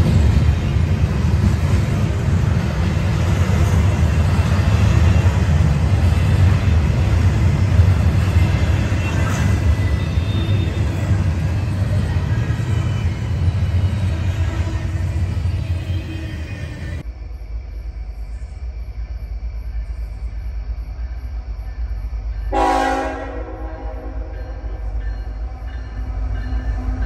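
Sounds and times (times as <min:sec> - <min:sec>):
train wheels rumbling on track: 0:00.0 - 0:27.0.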